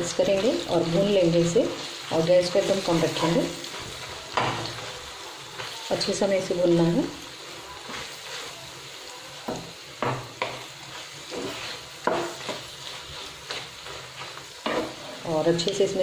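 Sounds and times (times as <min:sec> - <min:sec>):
faint sizzle: 0:00.0 - 0:16.0
spatula scraping a pan: 0:10.0 - 0:15.3.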